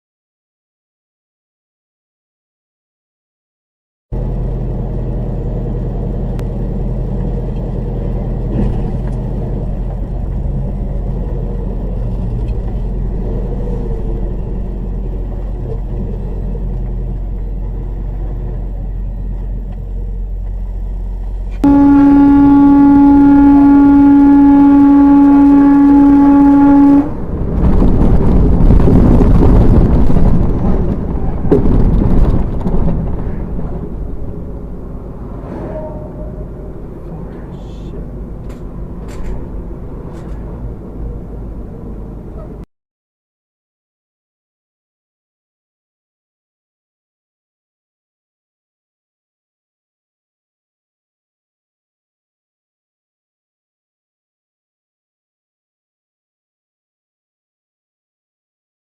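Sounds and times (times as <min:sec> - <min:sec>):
vehicle drone: 0:04.1 - 0:42.6
vehicle horn: 0:21.6 - 0:27.4, 0:35.6 - 0:36.6.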